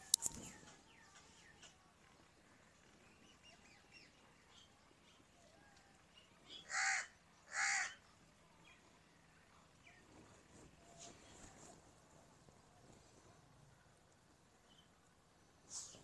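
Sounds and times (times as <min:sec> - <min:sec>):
small birds chirping: 0:00.0 - 0:16.0
bird cawing: 0:06.5 - 0:08.0.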